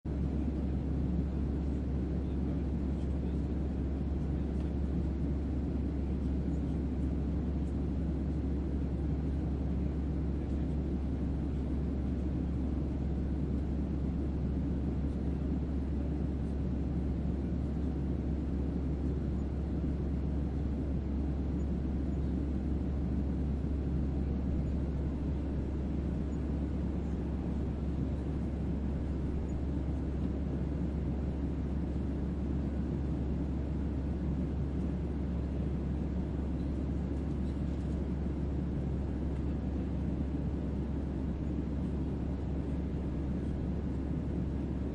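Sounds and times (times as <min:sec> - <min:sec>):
deep ambient drone hum: 0:16.8 - 0:34.1.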